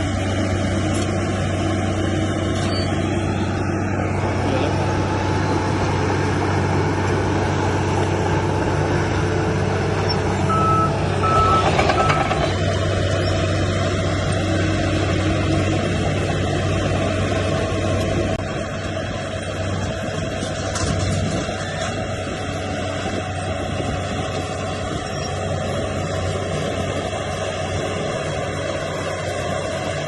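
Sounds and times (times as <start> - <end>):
heavy machinery running: 0.0 - 30.0
reversing alarm beeps: 10.5 - 12.4.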